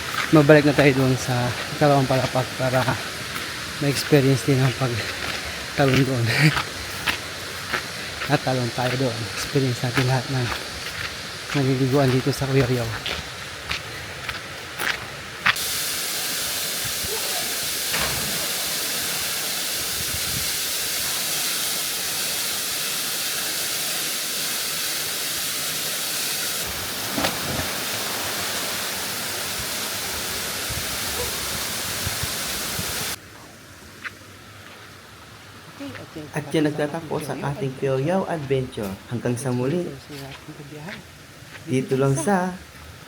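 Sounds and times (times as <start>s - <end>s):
waterfall rushing: 0.0s - 33.3s.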